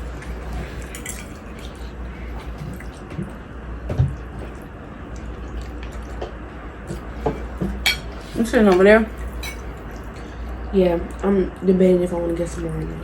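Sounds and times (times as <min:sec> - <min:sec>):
wet chewing: 0:00.0 - 0:08.2
steady low hum: 0:00.0 - 0:13.0.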